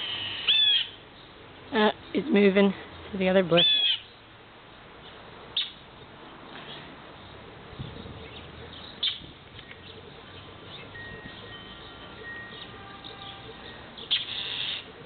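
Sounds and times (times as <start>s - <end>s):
sharp high bird calls: 0.0s - 1.0s, 3.6s - 4.2s, 8.3s - 15.0s.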